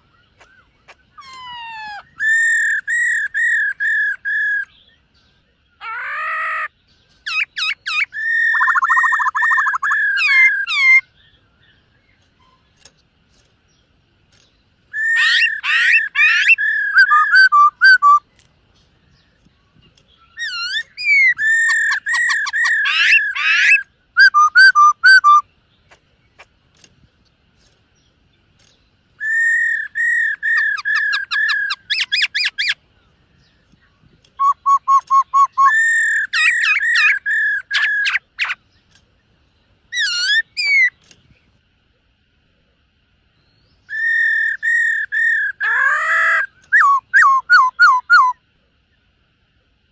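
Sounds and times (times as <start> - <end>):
bird singing whistled trills: 0.0 - 12.6, 14.4 - 18.4, 19.1 - 25.5, 28.6 - 32.8, 33.4 - 38.6, 39.9 - 41.1, 43.4 - 48.5.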